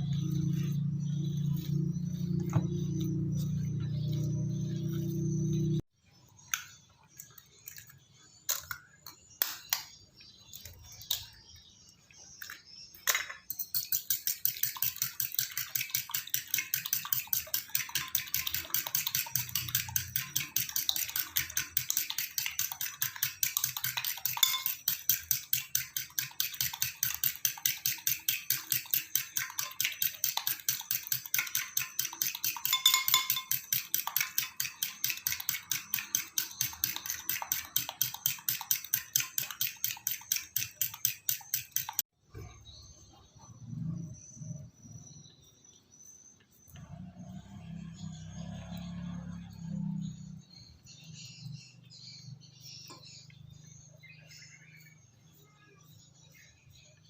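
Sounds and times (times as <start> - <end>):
utensil clinks and knocks: 12.4 - 42.0.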